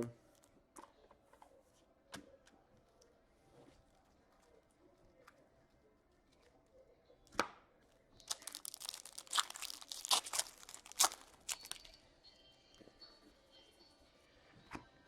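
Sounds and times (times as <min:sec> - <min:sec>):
wrapper tearing and crinkling: 0:08.2 - 0:11.9
wrapper cracking: 0:08.2 - 0:12.0.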